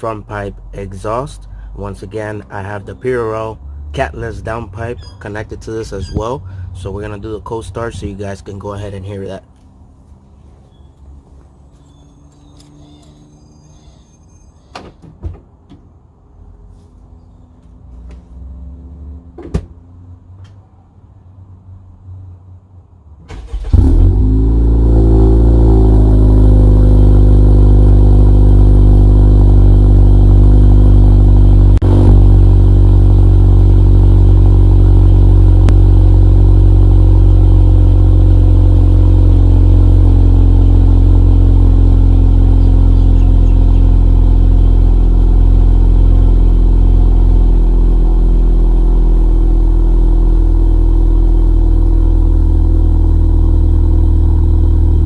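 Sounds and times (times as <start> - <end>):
car engine cold start and fast idle: 23.2 - 55.0.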